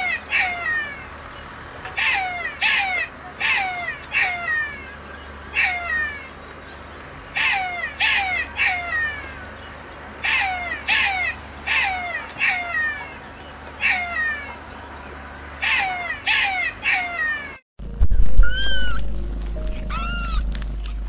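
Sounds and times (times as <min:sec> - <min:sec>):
jackal yelping: 0:00.0 - 0:01.1, 0:01.8 - 0:06.3, 0:07.3 - 0:09.5, 0:10.2 - 0:14.6, 0:15.6 - 0:17.6, 0:19.8 - 0:20.4.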